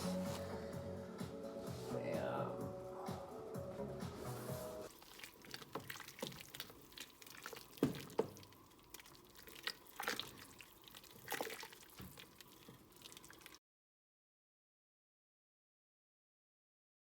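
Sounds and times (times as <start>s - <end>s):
liquid plops and drips: 4.9s - 13.6s.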